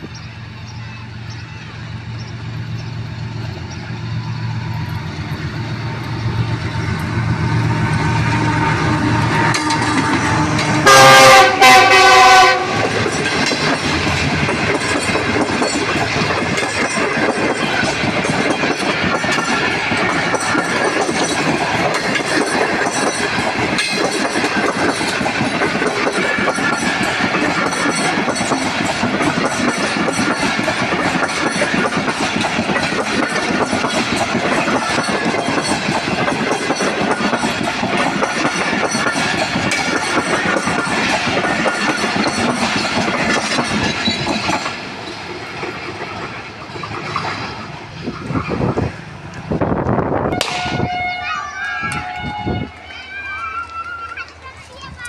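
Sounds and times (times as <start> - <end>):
train wheels clattering on rails: 0.0 - 51.0
diesel locomotive engine: 0.0 - 55.0
train horn blasts: 7.4 - 13.0, 50.3 - 52.9.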